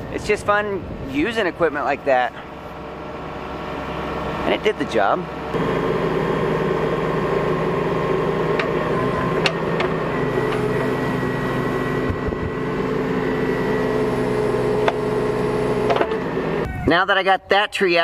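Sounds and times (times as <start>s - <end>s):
diesel engine running: 0.0s - 16.9s.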